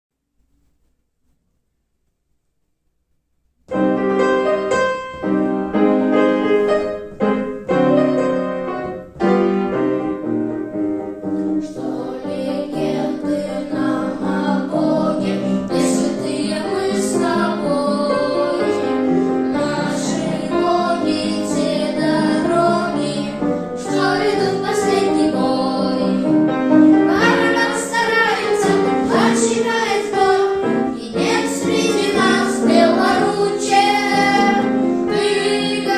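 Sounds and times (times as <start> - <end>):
piano playing: 3.7 - 35.9
young voices singing: 11.1 - 35.9.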